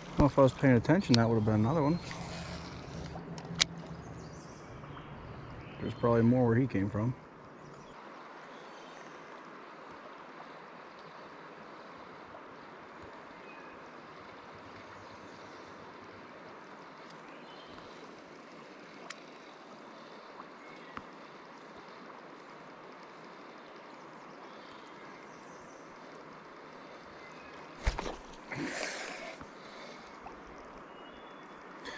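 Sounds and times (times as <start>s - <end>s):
faint sharp clicks: 0.9s - 1.3s, 16.9s - 18.1s, 18.8s - 19.5s.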